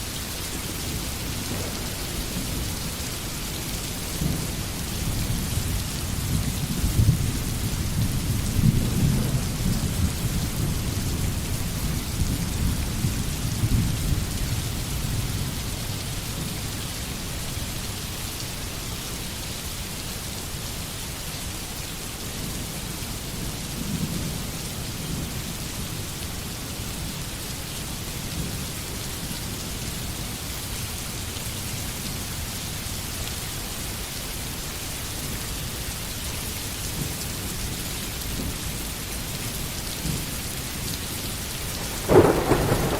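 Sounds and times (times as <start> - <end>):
steady rain hissing: 0.0 - 42.9
rolling thunder rumble: 5.2 - 12.6, 41.8 - 42.9.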